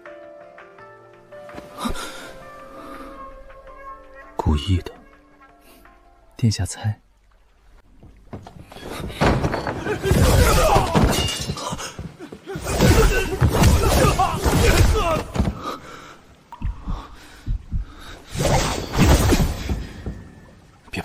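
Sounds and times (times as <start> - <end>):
thuds: 8.0 - 11.6
crashes of breaking and shattering: 9.0 - 11.8.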